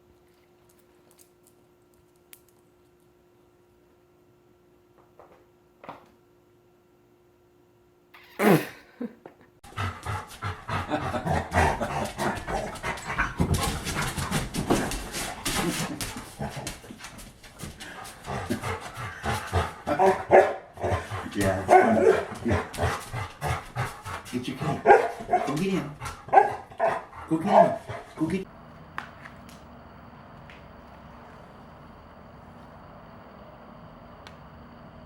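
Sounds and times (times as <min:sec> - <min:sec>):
dogs growling barking and panting: 0:09.6 - 0:28.5.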